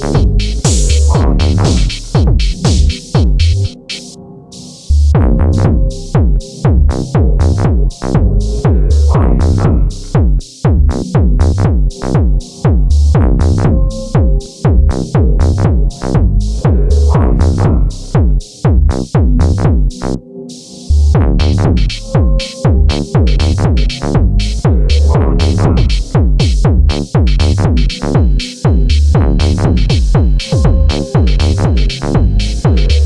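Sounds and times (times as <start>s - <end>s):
drum machine techno beat: 0.0s - 4.2s, 5.1s - 20.2s, 21.1s - 33.0s
synth notes dropping in pitch: 0.0s - 10.2s, 10.9s - 18.2s, 27.4s - 33.0s.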